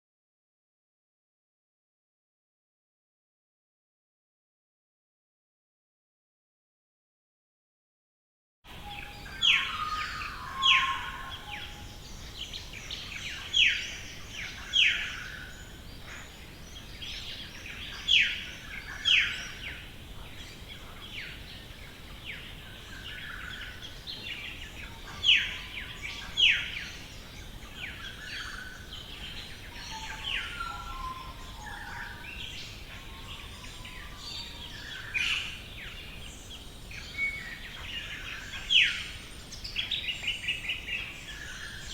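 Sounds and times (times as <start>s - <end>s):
faint bird chirps and twitters: 8.7s - 41.9s.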